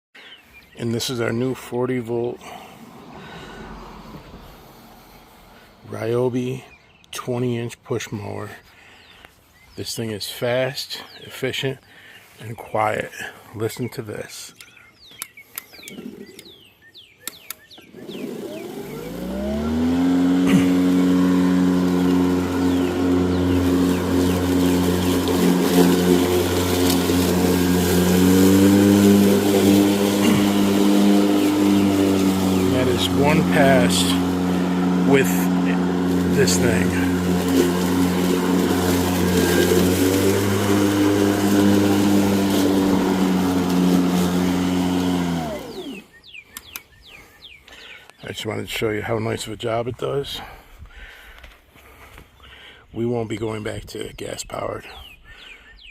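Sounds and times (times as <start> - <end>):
electric mower motor humming: 17.4 - 46.8.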